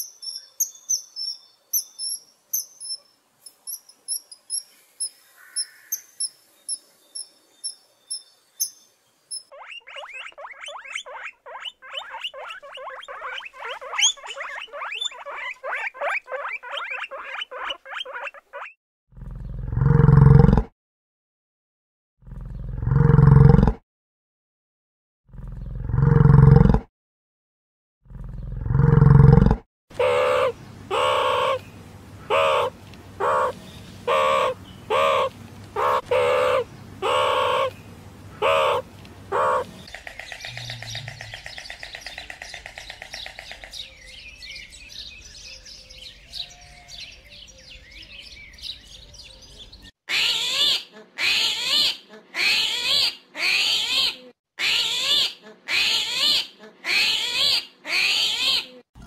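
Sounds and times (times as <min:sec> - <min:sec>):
high chirps: 0:00.0 - 0:18.8
loud chirping calls: 0:00.0 - 0:18.8, 0:29.9 - 0:58.8
animal calls: 0:09.5 - 0:18.8, 0:29.9 - 0:31.6, 0:32.2 - 0:44.0.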